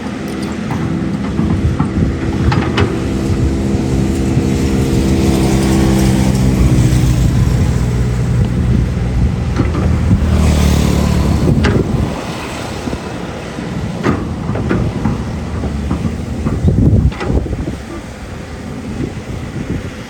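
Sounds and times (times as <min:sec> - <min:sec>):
knocks: 0:00.0 - 0:08.9, 0:13.7 - 0:18.0
excavator diesel engine: 0:00.0 - 0:20.0.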